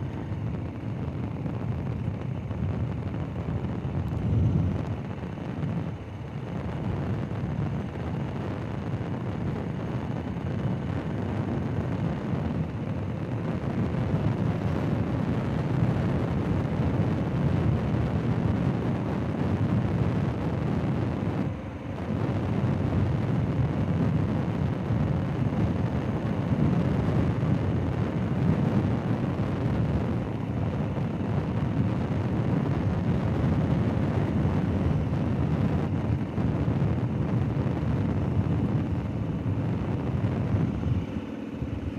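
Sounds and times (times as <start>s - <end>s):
wind rushing over microphone: 0.0s - 41.9s.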